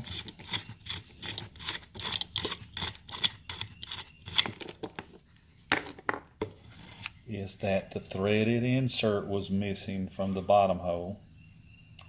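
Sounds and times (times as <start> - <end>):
light clicks and scrapes: 6.5 - 7.2.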